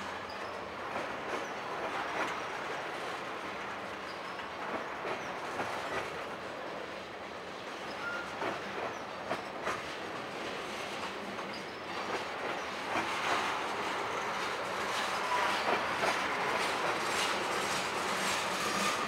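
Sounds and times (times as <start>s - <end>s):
clacks at rail joints: 0.0s - 19.0s
steel wheels rumbling on rail: 0.0s - 19.0s
high wheel squeal: 7.9s - 9.0s, 14.1s - 19.0s.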